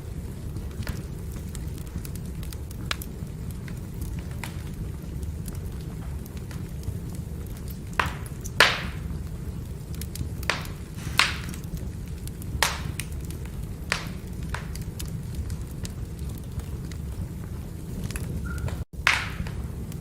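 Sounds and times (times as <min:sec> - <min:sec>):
fire crackles and pops: 0:00.0 - 0:20.0
firewood burning rumble: 0:00.0 - 0:20.0.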